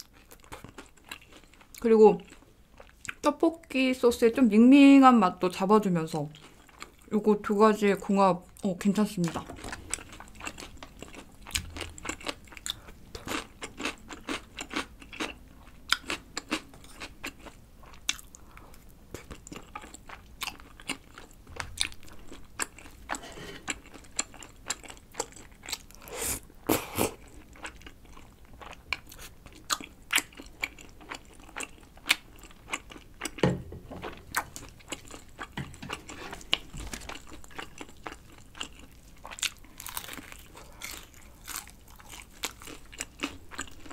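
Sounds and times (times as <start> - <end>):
soft chewing: 0.0 - 3.3, 6.3 - 7.1, 8.5 - 33.4, 34.0 - 43.9
crunching fried chicken: 36.3 - 43.9.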